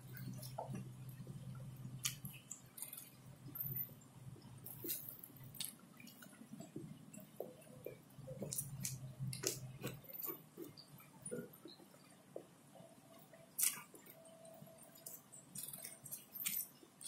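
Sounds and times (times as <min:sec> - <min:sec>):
faint low hum: 0:00.0 - 0:17.0
wet chewing and lip smacking: 0:04.4 - 0:12.2, 0:13.5 - 0:16.8.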